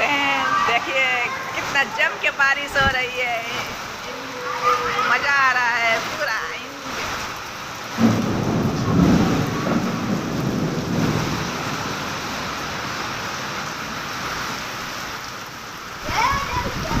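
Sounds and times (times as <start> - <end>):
heavy rain pouring: 0.0 - 17.0
low rumble of thunder: 7.9 - 13.0.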